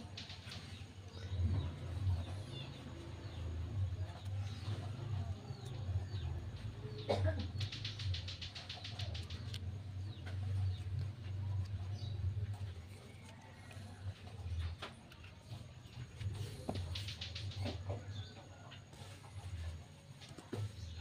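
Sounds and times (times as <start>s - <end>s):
birds chirping: 0.0s - 21.0s
steady low hum: 0.0s - 21.0s
fast run of ticks: 7.4s - 10.2s, 16.4s - 17.7s.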